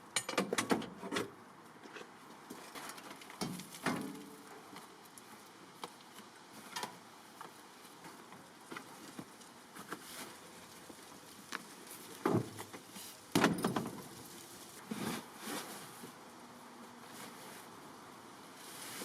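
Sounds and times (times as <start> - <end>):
objects handled clicking and rattling: 0.1 - 1.2.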